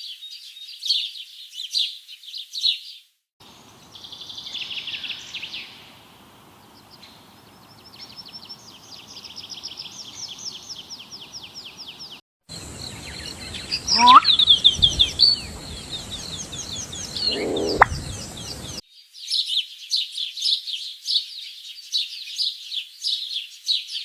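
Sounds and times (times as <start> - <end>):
sharp bird chirps: 12.9 - 15.6, 16.2 - 19.6
songbird trilling: 12.9 - 18.7.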